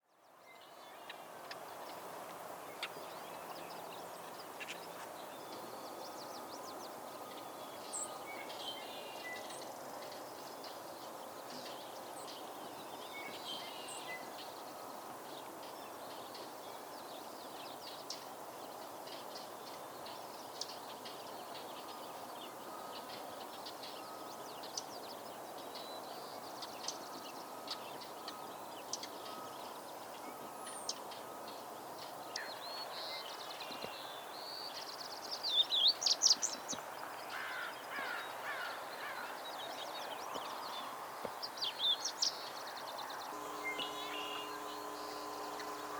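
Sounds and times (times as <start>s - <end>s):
birds chirping: 37.4s - 45.9s.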